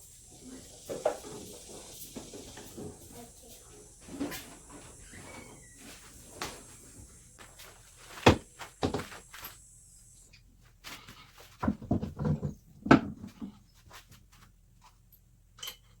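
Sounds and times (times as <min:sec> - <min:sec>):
faint steady hiss: 0:00.0 - 0:11.7
car body panel knocks and clunks: 0:08.2 - 0:09.1.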